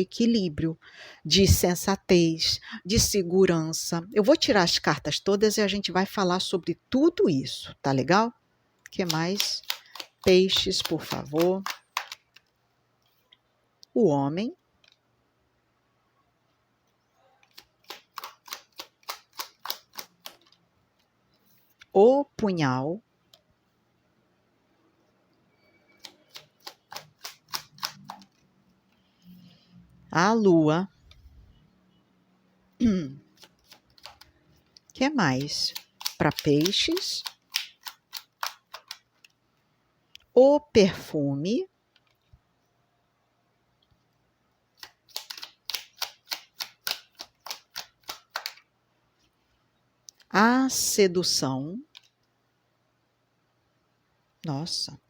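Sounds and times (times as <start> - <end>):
deck of cards shuffled: 9.0 - 12.5, 17.5 - 20.6
cards shuffling clicks: 9.0 - 12.6, 17.4 - 20.6, 25.9 - 28.5, 33.3 - 39.4, 44.8 - 48.6.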